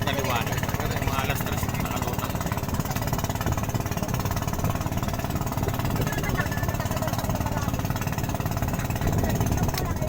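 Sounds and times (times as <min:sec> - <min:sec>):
small engine chugging: 0:00.0 - 0:10.0.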